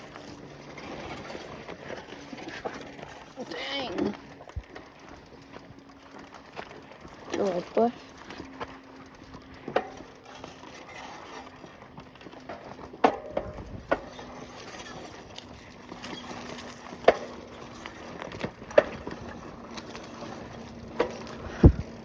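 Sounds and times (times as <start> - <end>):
bicycle rolling on dirt: 0.0 - 22.0
bicycle knocks and clicks: 9.6 - 11.4, 12.4 - 22.0.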